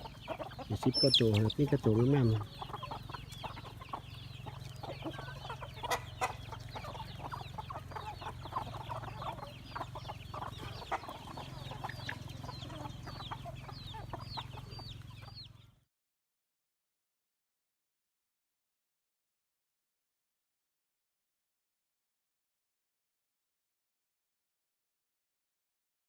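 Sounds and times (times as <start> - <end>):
chickens clucking: 0.0 - 15.8.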